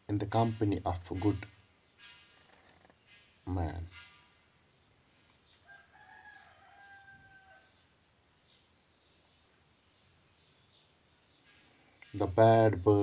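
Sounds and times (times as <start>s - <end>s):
small bird chirping: 0.4s - 5.8s, 7.3s - 12.5s
rooster-like crow: 5.6s - 7.8s.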